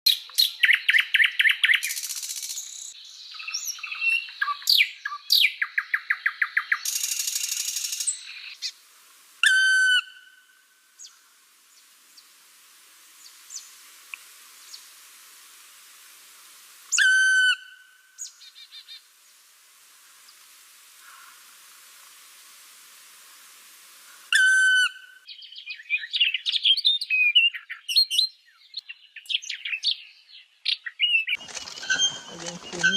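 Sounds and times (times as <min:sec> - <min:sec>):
loud whistled bird calls: 0:09.4 - 0:11.2, 0:16.9 - 0:19.0, 0:24.3 - 0:30.1, 0:30.7 - 0:32.9
parrots chirping: 0:31.4 - 0:32.9.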